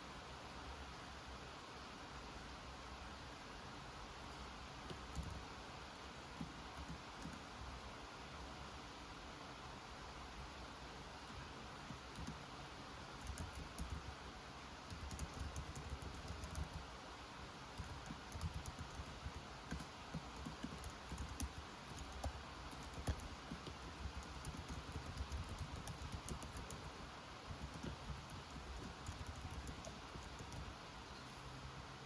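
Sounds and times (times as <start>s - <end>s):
typing on computer keyboard: 4.9s - 5.5s, 6.4s - 7.5s, 11.9s - 12.5s, 13.1s - 14.2s, 14.9s - 16.9s, 17.8s - 30.8s.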